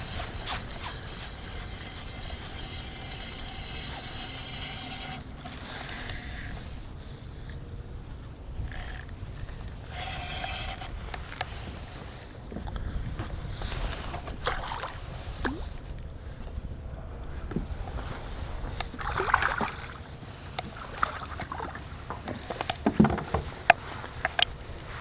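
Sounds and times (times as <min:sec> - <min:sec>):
water lapping against hull: 0:18.7 - 0:22.8
knocks and clicks on boat: 0:21.4 - 0:24.6.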